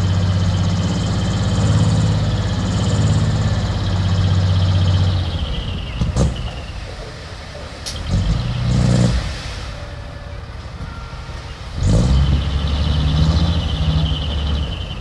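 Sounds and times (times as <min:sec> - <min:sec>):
heavy machine engine revving: 0:00.0 - 0:15.0.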